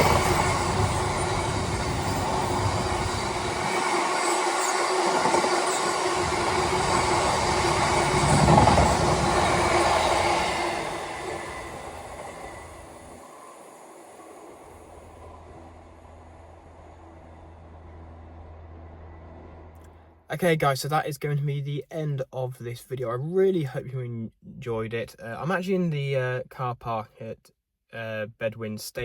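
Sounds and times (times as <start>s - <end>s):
wheel squeal: 0.0s - 15.4s
train wagons rolling on rails: 0.0s - 19.9s.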